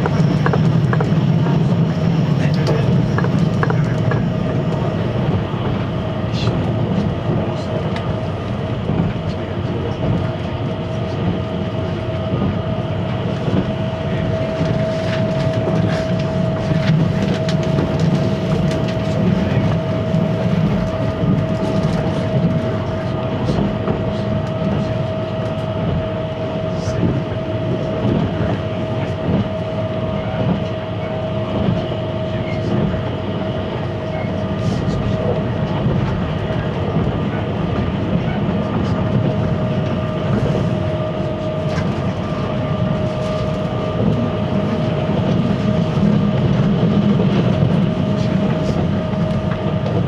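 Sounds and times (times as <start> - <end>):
train running at speed: 0.0 - 50.0.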